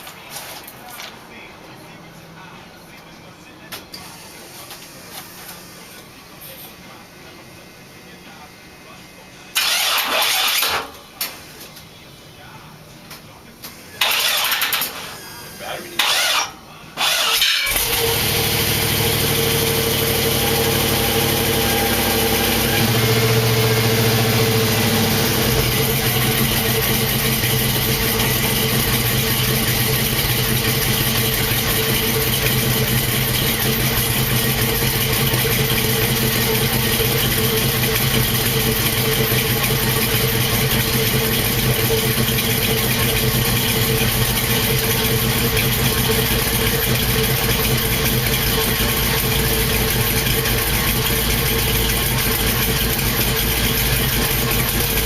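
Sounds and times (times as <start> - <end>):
car engine idling: 13.8 - 55.0.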